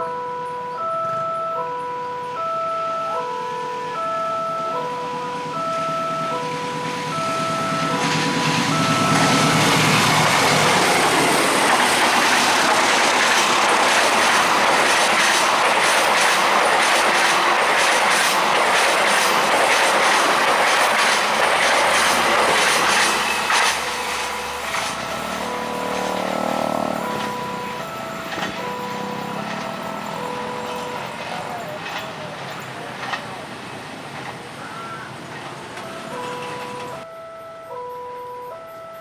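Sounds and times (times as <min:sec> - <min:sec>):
two-note crossing warning bell: 0:00.0 - 0:16.8, 0:22.0 - 0:33.2, 0:35.8 - 0:39.0
train wheels on rail clickety-clack: 0:04.7 - 0:37.1.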